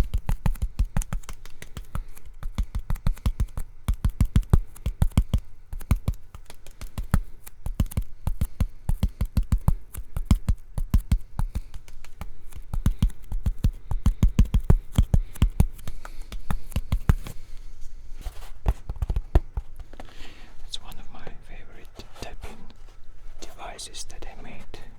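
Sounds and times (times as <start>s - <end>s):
finger tapping on hard surface: 0.0s - 17.4s, 18.7s - 19.7s.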